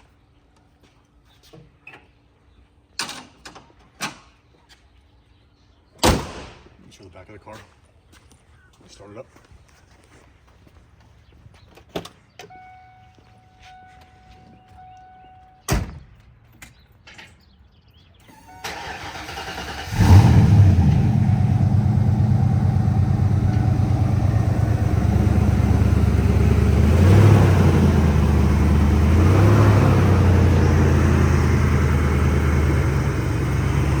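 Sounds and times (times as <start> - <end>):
car engine idling: 18.7 - 34.0.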